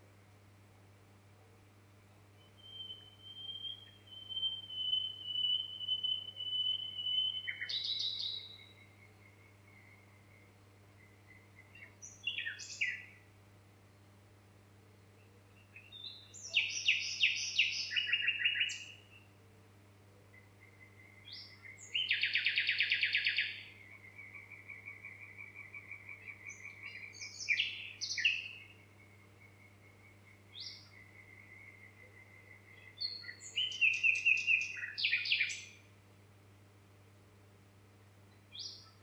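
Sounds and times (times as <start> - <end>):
songbirds trilling: 2.5 - 13.2, 15.1 - 19.4, 20.3 - 35.8.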